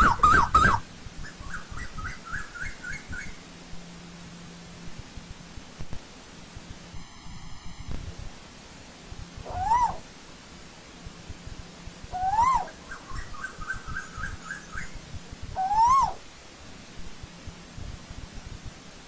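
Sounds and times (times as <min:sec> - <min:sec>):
bird whistled calls: 0:00.0 - 0:03.4, 0:09.4 - 0:10.0, 0:12.1 - 0:14.9, 0:15.6 - 0:16.2.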